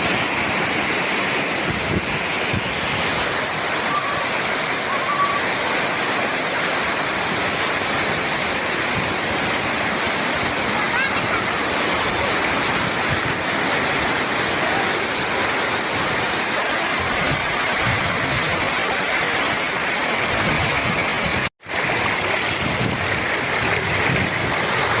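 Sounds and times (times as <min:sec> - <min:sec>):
waterfall roaring: 0:00.0 - 0:25.0.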